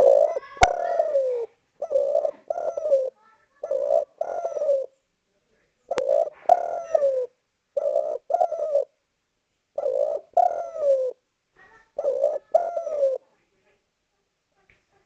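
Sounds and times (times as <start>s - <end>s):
dove cooing: 0.0s - 5.0s, 5.8s - 9.0s, 9.8s - 13.3s.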